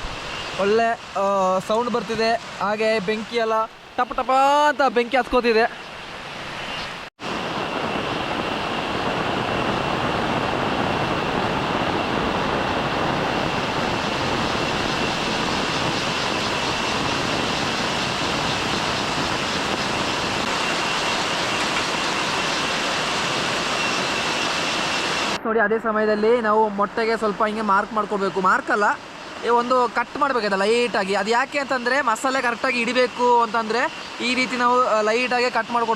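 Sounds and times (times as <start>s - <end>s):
heavy rain: 7.2s - 25.4s.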